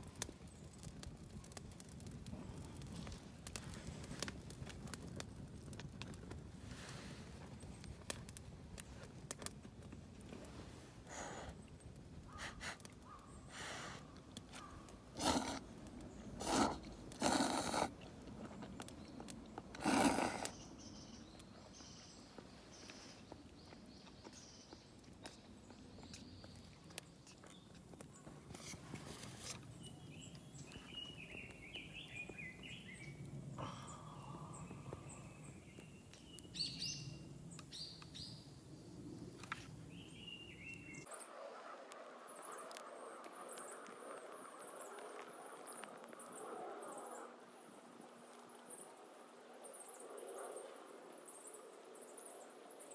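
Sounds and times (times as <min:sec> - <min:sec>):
low outdoor background: 0:00.0 - 0:52.9
small birds chirping: 0:11.4 - 0:41.1
person blowing on campfire: 0:12.4 - 0:14.0, 0:15.1 - 0:18.2, 0:19.7 - 0:20.6.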